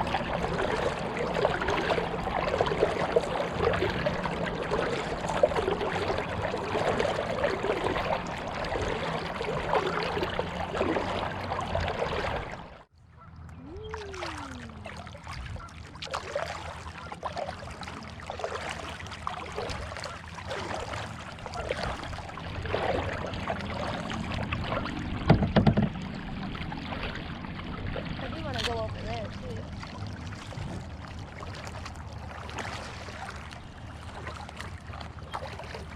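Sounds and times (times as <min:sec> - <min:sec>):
paddle splashing: 0:00.0 - 0:35.9
water running along hull: 0:00.0 - 0:35.9
knocks: 0:25.3 - 0:26.0.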